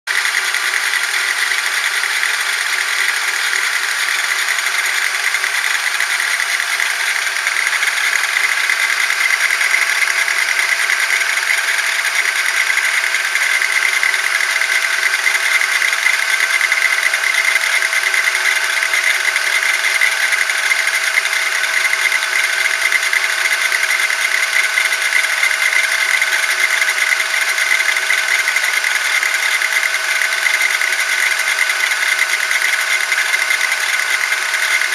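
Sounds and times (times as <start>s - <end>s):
steering mechanical whine: 0.1s - 34.9s.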